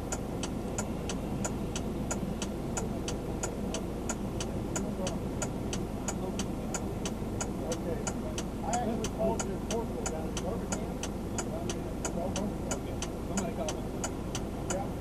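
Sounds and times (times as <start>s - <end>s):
turn signal clicking: 0.0s - 14.9s
engine and road rumble: 0.0s - 15.0s.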